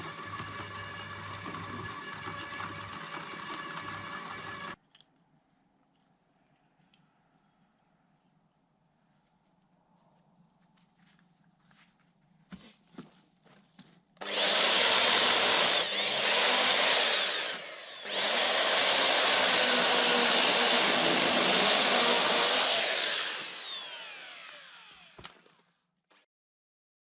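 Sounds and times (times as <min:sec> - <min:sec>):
power tool whining: 0:00.0 - 0:04.8, 0:14.2 - 0:25.7.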